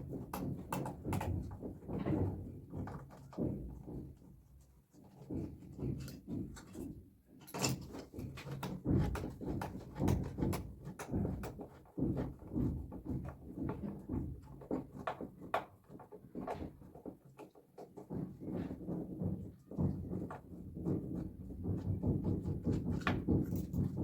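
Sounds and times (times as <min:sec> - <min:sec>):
tools knocking on metal and plastic: 0:00.0 - 0:04.4, 0:05.0 - 0:06.9, 0:07.5 - 0:24.0.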